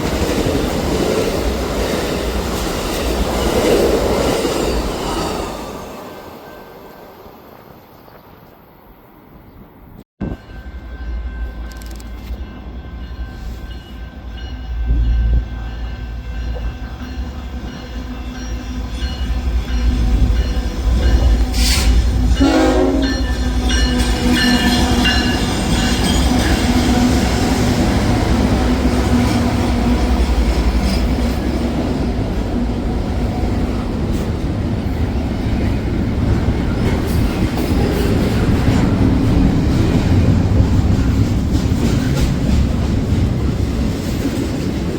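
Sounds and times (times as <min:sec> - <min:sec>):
train cars rumbling past: 0:00.0 - 0:44.9
train horn: 0:21.3 - 0:25.5.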